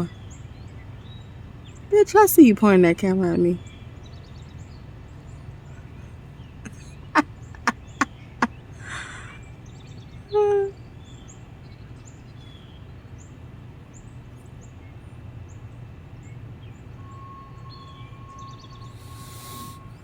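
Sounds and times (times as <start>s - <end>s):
small birds chirping: 0.0s - 1.9s, 3.3s - 20.0s
low outdoor hum: 0.0s - 20.0s
steady high tone: 17.0s - 20.0s.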